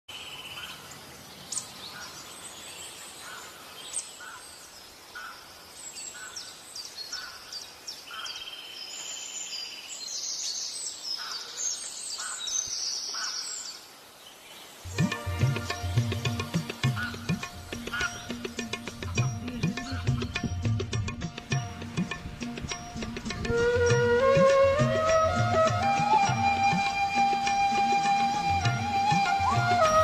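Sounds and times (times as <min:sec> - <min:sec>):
outdoor hiss: 0:00.1 - 0:20.0, 0:21.0 - 0:30.0
birds chirping and calling: 0:00.3 - 0:09.6, 0:10.2 - 0:13.8, 0:15.6 - 0:20.8.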